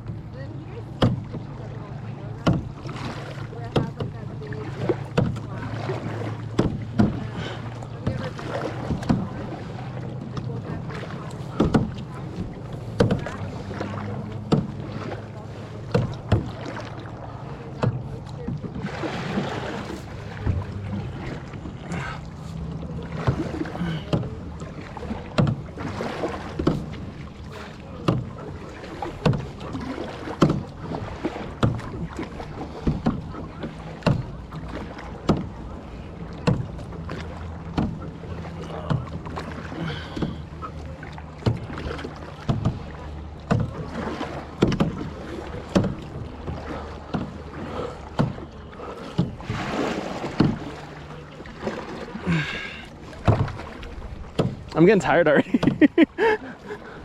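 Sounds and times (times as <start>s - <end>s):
low hum: 0.0s - 29.6s
paddle splashing into water: 0.0s - 57.0s.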